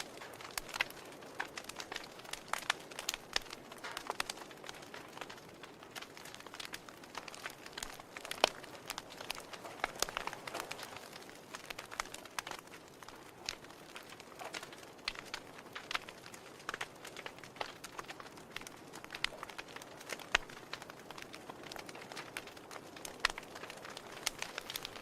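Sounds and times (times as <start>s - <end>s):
soft steady hiss: 0.0s - 25.0s
wood fire crackling: 0.0s - 25.0s.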